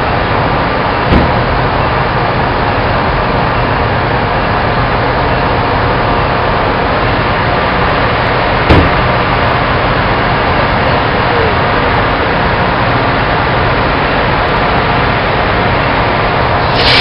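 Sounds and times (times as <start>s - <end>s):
diesel locomotive idling: 0.0s - 17.0s
sharp thump: 1.1s - 1.6s, 8.7s - 9.2s.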